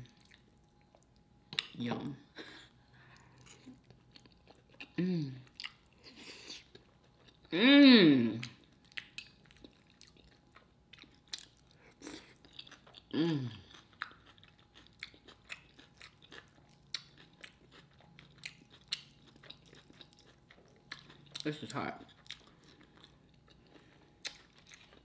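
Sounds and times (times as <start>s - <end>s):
chewing with crunches: 0.0s - 1.8s, 2.9s - 7.5s, 8.4s - 25.0s
person humming: 5.0s - 5.4s, 7.5s - 8.4s, 13.1s - 13.6s.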